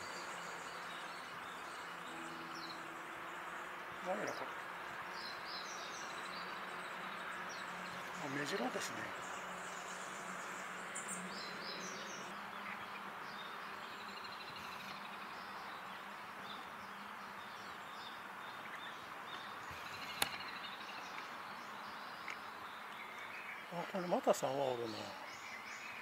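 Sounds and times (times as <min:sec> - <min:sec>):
background hiss: 0:00.0 - 0:26.0
small bird chirps: 0:00.0 - 0:26.0
sharp click: 0:20.0 - 0:20.4.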